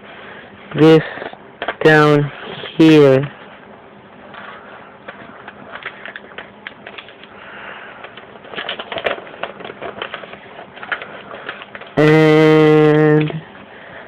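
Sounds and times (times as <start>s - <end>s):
paper crinkling and rustling: 4.3s - 7.4s, 8.0s - 12.0s.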